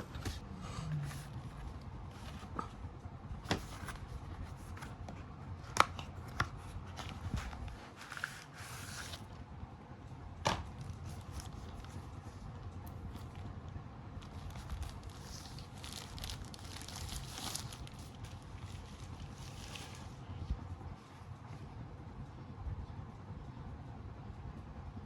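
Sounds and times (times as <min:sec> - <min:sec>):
packaging rustle: 0:05.7 - 0:09.3, 0:14.2 - 0:20.2.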